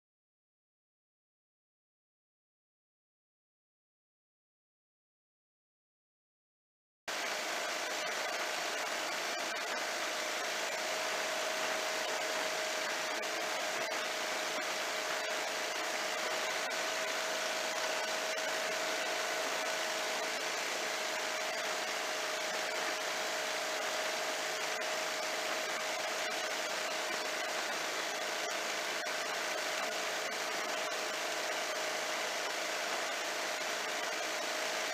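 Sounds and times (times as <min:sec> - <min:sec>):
ultralight airplane engine drone: 0:07.1 - 0:34.9.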